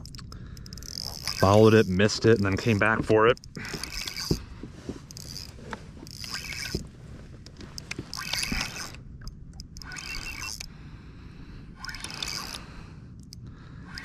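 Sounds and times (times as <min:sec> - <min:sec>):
fishing reel clicking: 0:00.0 - 0:04.4, 0:05.1 - 0:06.8, 0:07.8 - 0:09.0, 0:09.6 - 0:10.7, 0:11.8 - 0:14.0.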